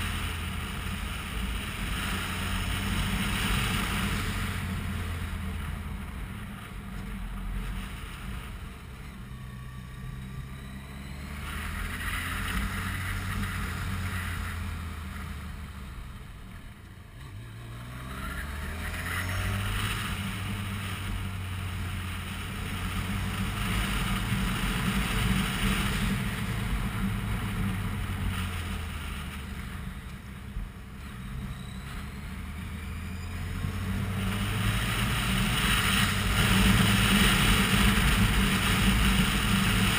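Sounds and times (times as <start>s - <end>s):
motorcycle engine running: 18.2s - 39.9s
wind rushing over microphone: 33.7s - 39.9s.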